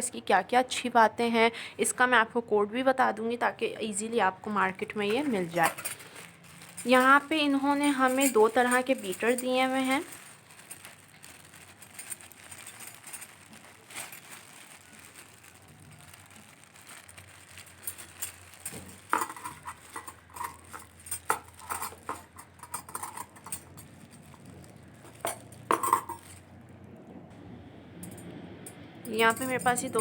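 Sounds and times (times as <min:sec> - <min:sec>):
metal beaters clinking: 0:04.7 - 0:11.0, 0:17.8 - 0:23.9, 0:29.1 - 0:30.0
handling taps and rustles: 0:04.7 - 0:15.3, 0:16.8 - 0:26.4.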